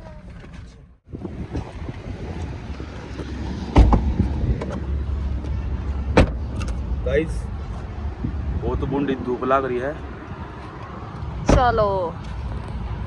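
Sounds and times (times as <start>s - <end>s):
wind buffeting microphone: 1.0s - 5.4s, 7.4s - 9.3s
loud thump: 3.7s - 4.4s, 6.1s - 6.4s.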